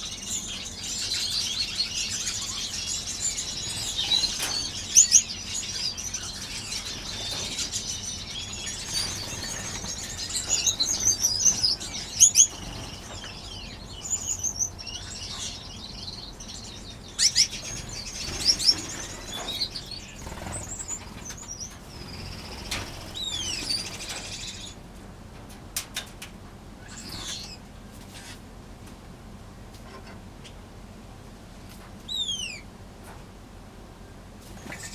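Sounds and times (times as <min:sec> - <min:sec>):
finches chirping: 0:00.0 - 0:24.8, 0:34.6 - 0:34.9
wings fluttering: 0:02.1 - 0:14.8, 0:17.2 - 0:24.8, 0:34.4 - 0:34.9.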